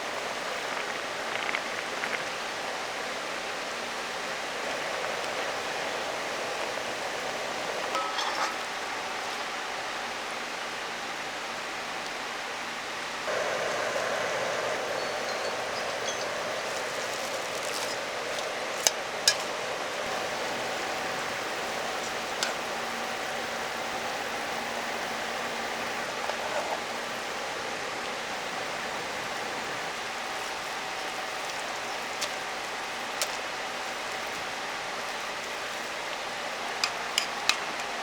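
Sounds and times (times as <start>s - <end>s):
stream rushing: 13.3s - 38.0s.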